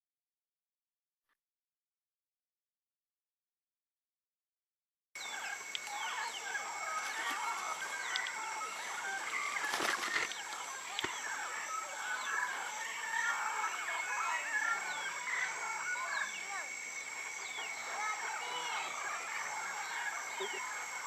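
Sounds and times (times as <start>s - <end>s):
parrots squawking and chattering: 5.2s - 21.0s.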